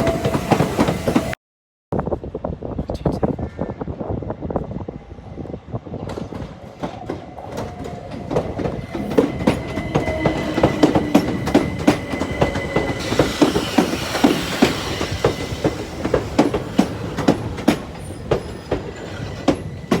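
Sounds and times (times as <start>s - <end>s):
train wheels clacking on rails: 0.0s - 1.4s, 6.0s - 20.0s.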